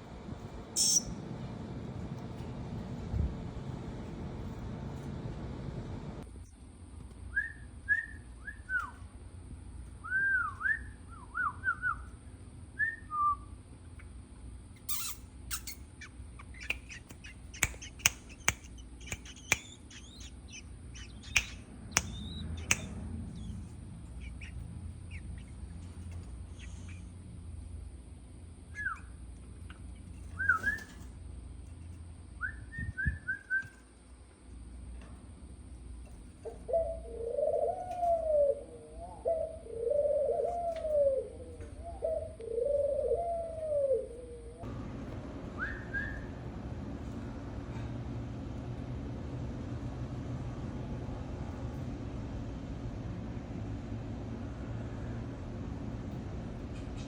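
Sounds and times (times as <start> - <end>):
small birds chirping: 0.2 - 3.0, 14.8 - 27.4
high quick chirps: 0.8 - 1.2, 14.8 - 23.6
sharp clicks: 16.6 - 20.2, 21.2 - 23.0.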